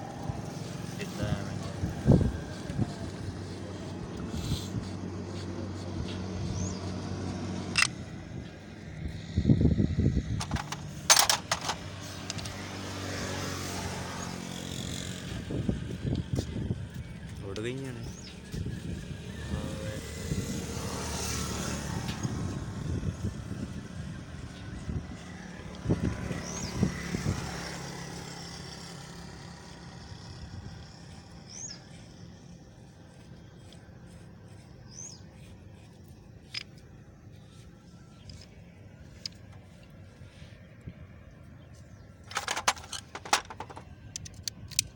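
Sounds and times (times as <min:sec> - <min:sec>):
vehicle engine running: 0:00.0 - 0:20.4, 0:21.2 - 0:44.6
sharp metallic clicks: 0:07.7 - 0:08.0, 0:10.4 - 0:12.6, 0:42.2 - 0:44.9
small motorcycle engine running: 0:24.8 - 0:36.8, 0:42.2 - 0:43.8.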